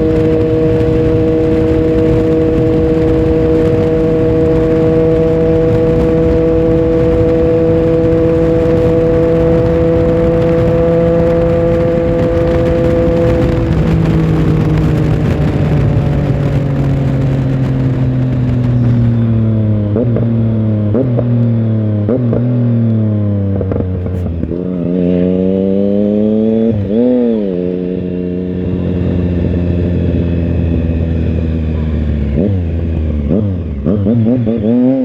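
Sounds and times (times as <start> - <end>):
wind noise: 0.0 - 35.0.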